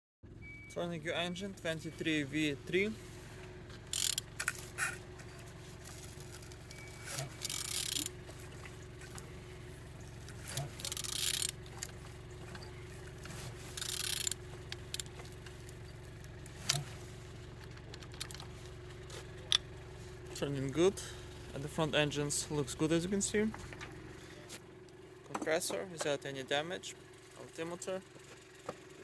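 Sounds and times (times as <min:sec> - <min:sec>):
metallic rattling and scraping: 0:01.7 - 0:19.8.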